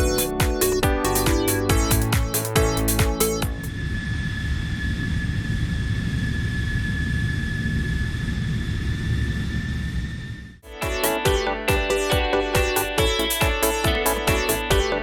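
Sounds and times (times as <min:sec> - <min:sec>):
airplane engine rumble with whine: 0:03.5 - 0:10.6.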